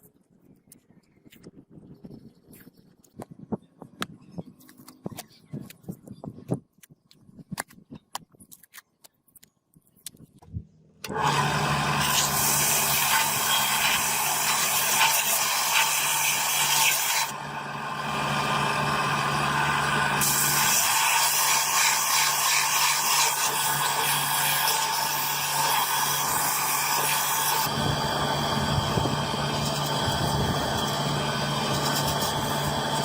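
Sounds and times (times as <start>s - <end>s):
power tool running with hiss: 11.1s - 33.0s.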